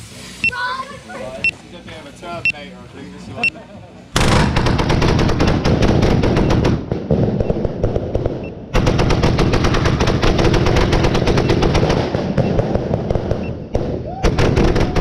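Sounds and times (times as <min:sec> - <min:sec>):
fireworks cracking rapidly: 0:04.2 - 0:15.0.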